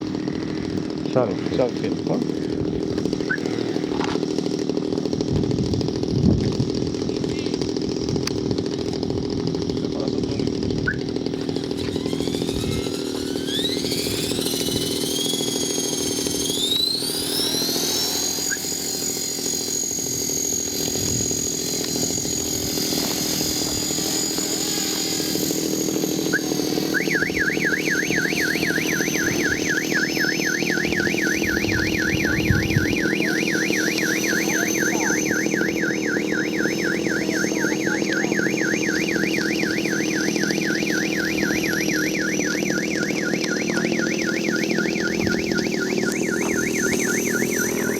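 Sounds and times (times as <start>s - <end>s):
rc helicopter motor whine: 0.0s - 47.9s
warbling electronic alarm tone: 10.8s - 47.9s.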